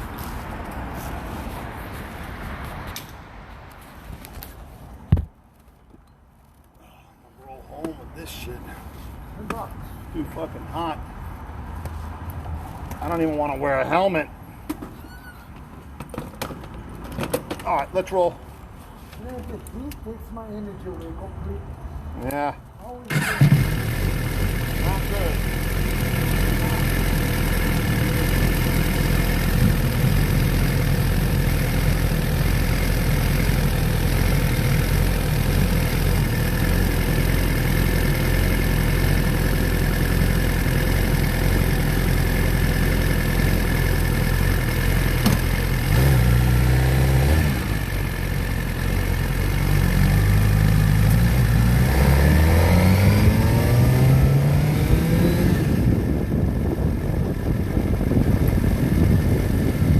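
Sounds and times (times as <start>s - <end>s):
motorcycle engine idling and revving: 23.1s - 59.9s.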